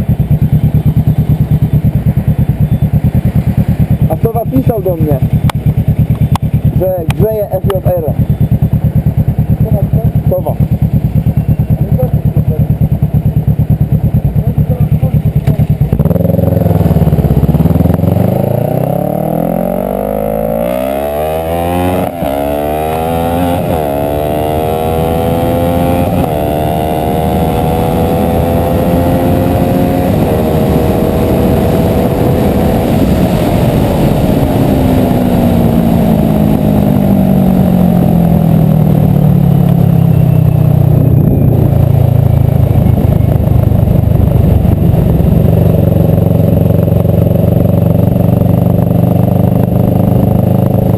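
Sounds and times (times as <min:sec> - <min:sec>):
motorcycle engine accelerating: 0:00.0 - 0:50.9
wind rush: 0:27.3 - 0:40.1, 0:40.8 - 0:50.9.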